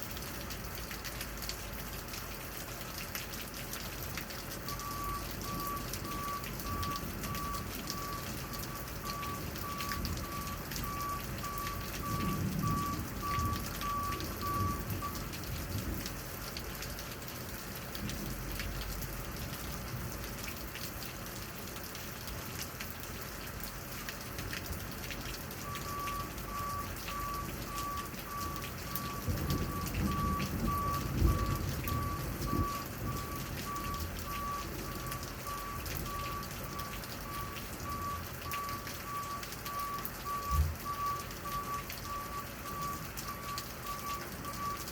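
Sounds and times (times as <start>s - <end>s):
steady rain falling: 0.0s - 44.9s
backup alarm beeping: 4.7s - 15.3s, 25.6s - 44.9s.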